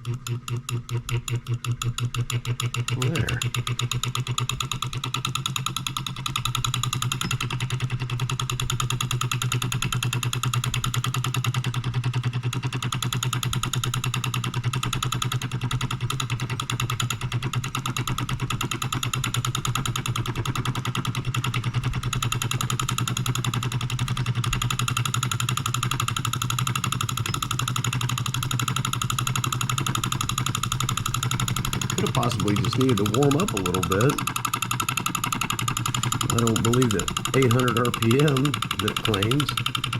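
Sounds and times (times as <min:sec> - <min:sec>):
solenoid engine clattering: 0:00.0 - 0:39.9.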